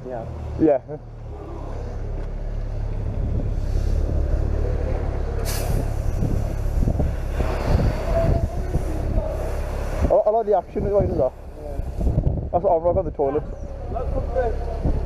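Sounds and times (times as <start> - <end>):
fire engine rumbling: 0.0 - 15.0
short sharp hiss: 5.4 - 6.2
fire hose spraying water: 5.4 - 12.1.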